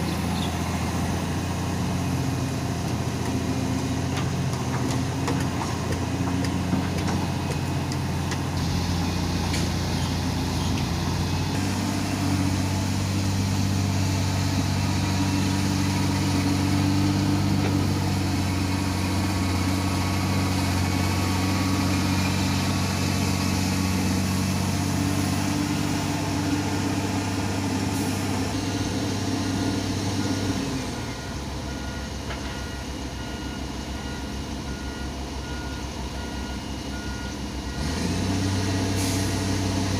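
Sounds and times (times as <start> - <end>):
excavator diesel engine under load: 0.0 - 39.9
reversing beeper: 28.6 - 38.1.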